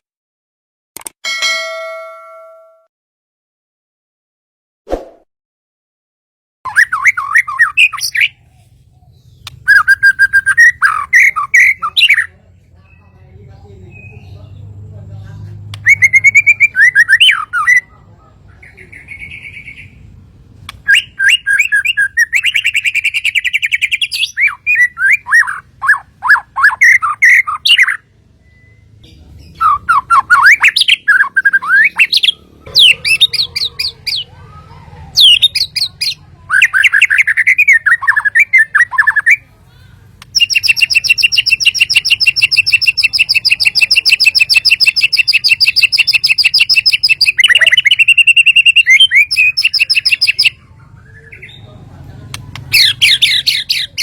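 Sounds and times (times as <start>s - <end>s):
songbird whistling phrases: 6.7s - 12.3s, 15.8s - 17.9s, 20.8s - 39.5s, 40.3s - 51.8s.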